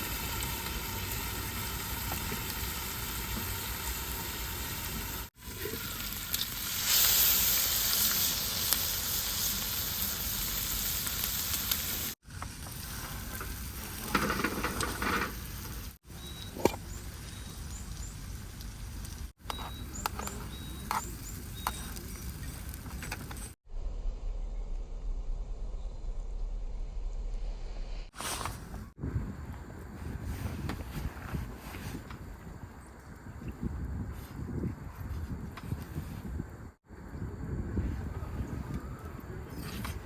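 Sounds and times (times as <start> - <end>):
food sizzling on a griddle: 0.0 - 16.0.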